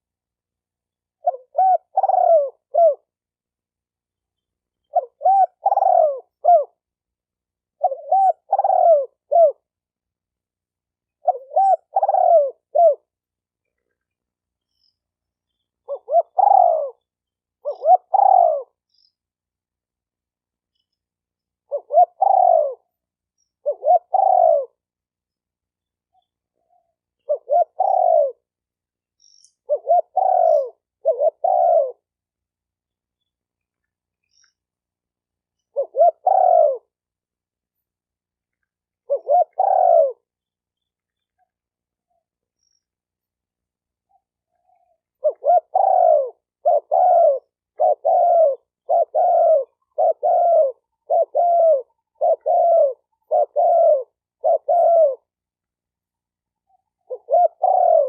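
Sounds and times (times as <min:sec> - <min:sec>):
dove cooing: 0:01.1 - 0:03.2, 0:04.8 - 0:06.9, 0:07.7 - 0:09.7, 0:11.2 - 0:13.2, 0:15.5 - 0:19.1, 0:21.6 - 0:22.9, 0:23.6 - 0:24.9, 0:26.2 - 0:28.5, 0:29.6 - 0:32.1, 0:35.7 - 0:37.0, 0:39.0 - 0:40.3, 0:44.1 - 0:55.4, 0:56.7 - 0:58.0
faint high bird chirp: 0:11.1 - 0:19.4, 0:20.7 - 0:28.4, 0:29.0 - 0:32.1, 0:32.8 - 0:34.8, 0:38.6 - 0:55.3.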